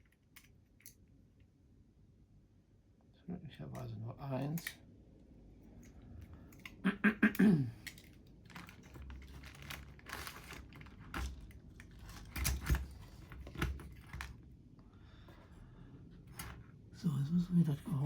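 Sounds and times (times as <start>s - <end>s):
small parts clicking and tapping: 0.0s - 1.5s, 3.7s - 4.9s, 5.6s - 14.4s.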